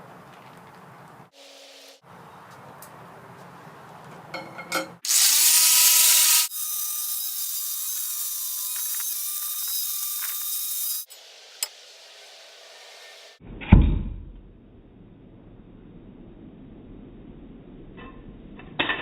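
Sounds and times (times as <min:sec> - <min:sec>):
power tool running: 0:05.0 - 0:11.1.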